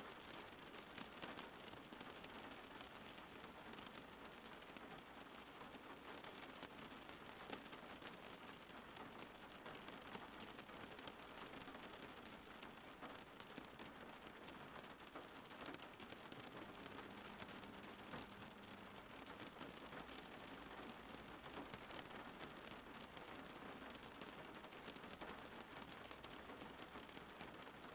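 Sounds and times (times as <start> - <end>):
faint rain falling: 0.0 - 27.9.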